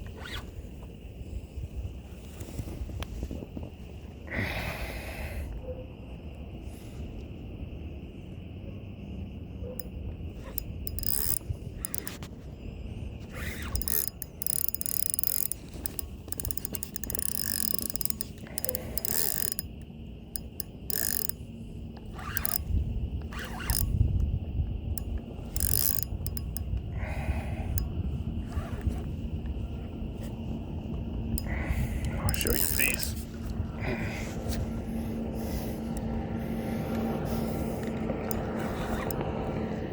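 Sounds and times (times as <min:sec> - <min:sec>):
fishing reel ratcheting: 0:09.8 - 0:12.3, 0:13.3 - 0:26.8, 0:27.7 - 0:28.0, 0:31.3 - 0:33.2, 0:37.3 - 0:39.2.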